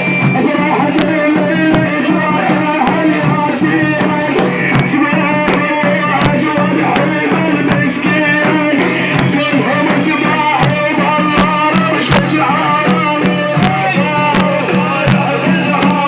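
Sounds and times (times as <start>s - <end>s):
devotional praise singing: 0.0s - 16.0s
drum beats: 0.0s - 16.0s.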